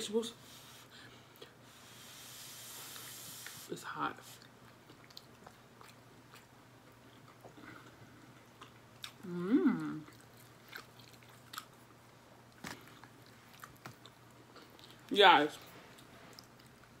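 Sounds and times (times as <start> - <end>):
wet chewing clicks: 4.6 - 7.5.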